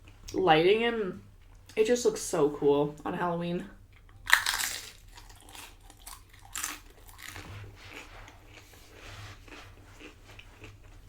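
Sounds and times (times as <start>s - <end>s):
crunching tortilla chips: 4.2s - 8.8s.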